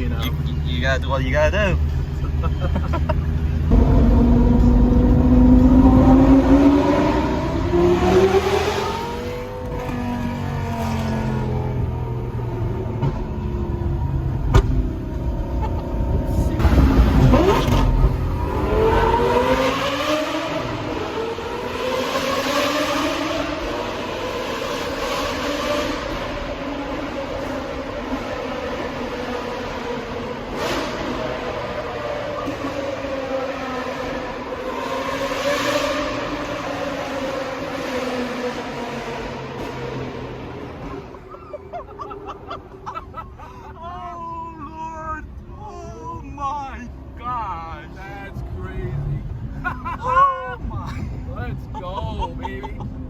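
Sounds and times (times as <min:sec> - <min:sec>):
car engine accelerating: 0:00.0 - 0:43.4
exhaust pop: 0:14.4 - 0:18.4.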